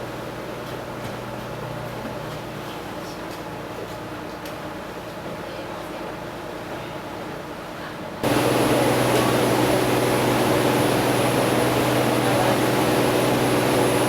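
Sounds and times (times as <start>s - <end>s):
engine hum: 8.2s - 14.0s
loud rushing noise: 8.2s - 14.0s.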